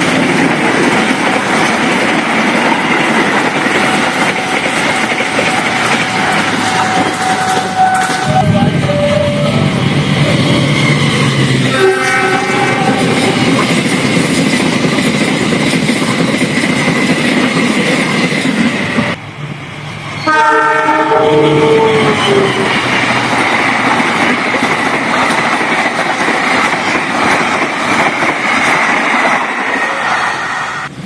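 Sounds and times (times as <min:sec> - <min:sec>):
train clattering on rails: 0:00.0 - 0:31.0
train horn chord: 0:05.5 - 0:10.4, 0:11.7 - 0:13.5, 0:20.2 - 0:22.7.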